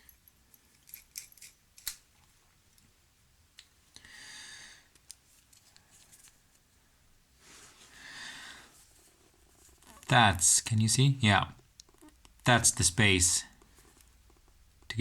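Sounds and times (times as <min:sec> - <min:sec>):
small lamp parts clicking: 0:00.7 - 0:02.0.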